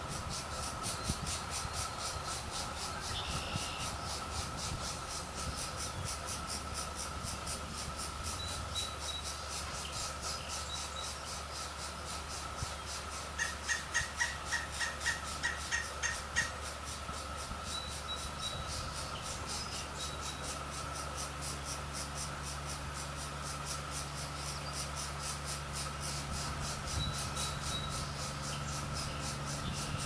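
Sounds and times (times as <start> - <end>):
insect-like ticking: 0.0 - 30.0.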